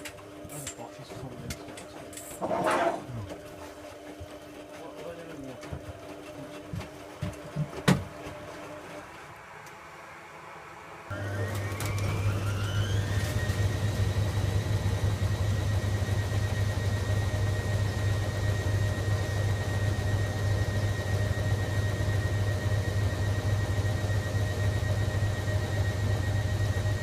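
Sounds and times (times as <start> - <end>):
washing machine low hum: 0.0 - 27.0
motor whine: 10.4 - 27.0.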